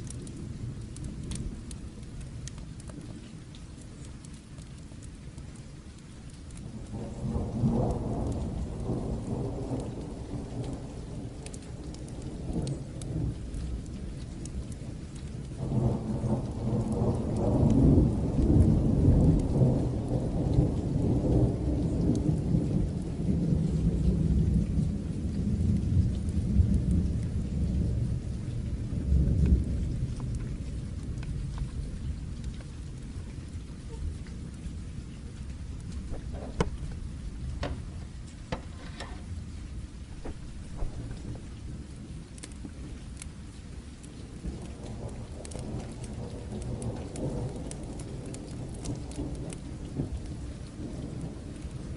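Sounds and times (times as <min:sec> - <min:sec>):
steady rain: 0:00.0 - 0:51.9
low rolls of thunder: 0:05.9 - 0:51.9.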